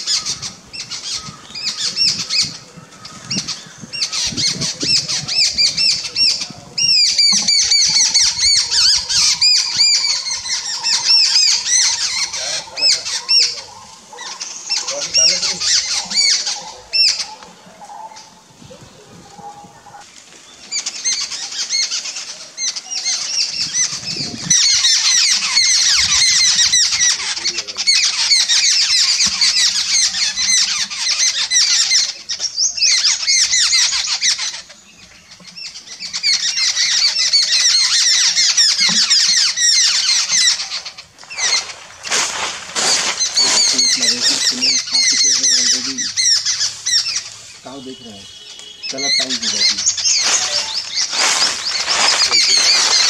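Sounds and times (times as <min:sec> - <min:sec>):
birds chattering: 0:00.0 - 0:53.0.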